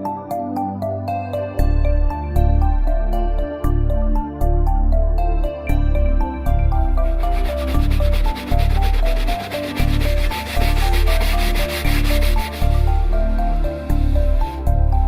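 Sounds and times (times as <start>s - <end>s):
background music with bass: 0.0s - 15.0s
abrasive pad rubbing leather: 6.8s - 14.6s.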